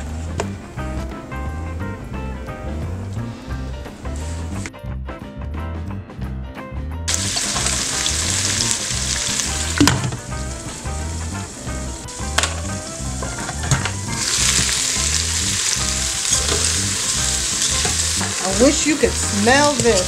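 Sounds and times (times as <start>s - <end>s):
vegetables and meat sizzling: 7.1s - 20.0s.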